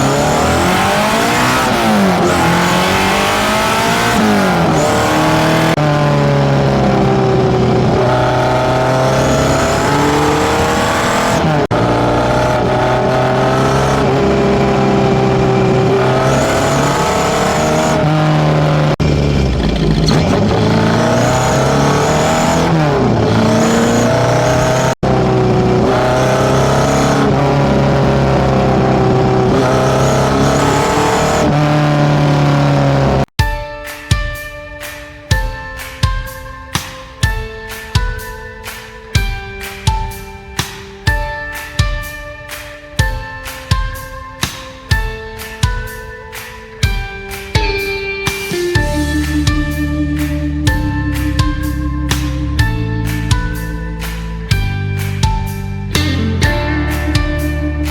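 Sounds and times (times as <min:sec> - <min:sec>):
car engine revving: 0:00.0 - 0:33.3, 0:48.8 - 0:57.9.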